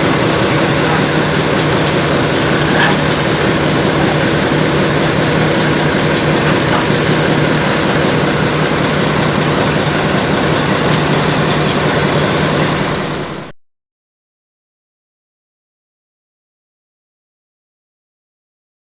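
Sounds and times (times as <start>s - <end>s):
diesel locomotive engine idling: 0.0s - 13.5s.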